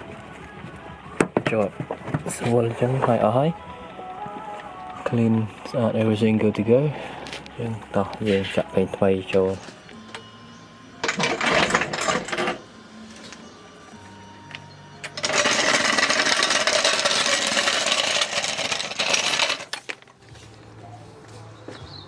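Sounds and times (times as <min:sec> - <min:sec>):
tool rattling mechanically: 0:11.0 - 0:12.6, 0:15.1 - 0:20.0.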